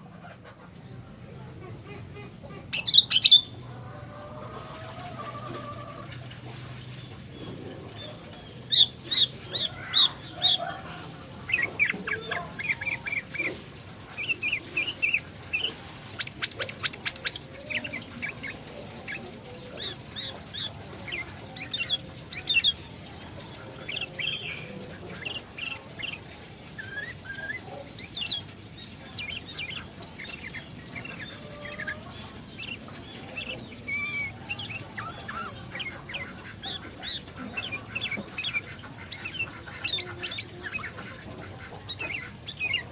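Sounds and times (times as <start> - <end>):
bird singing chirpy whistled notes: 2.8 - 3.6.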